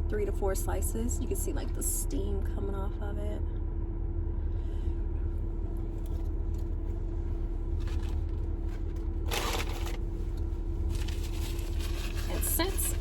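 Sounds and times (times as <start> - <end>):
car engine idling: 4.3 - 13.0
rustling: 7.7 - 13.0.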